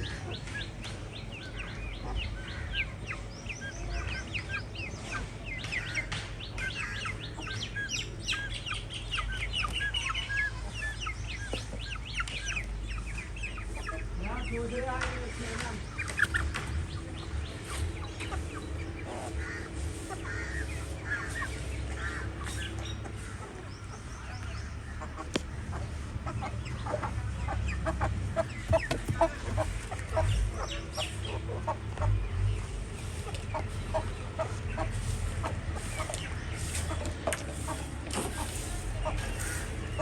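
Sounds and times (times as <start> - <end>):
chickens clucking: 0.0 - 40.0
low rumble: 15.4 - 40.0.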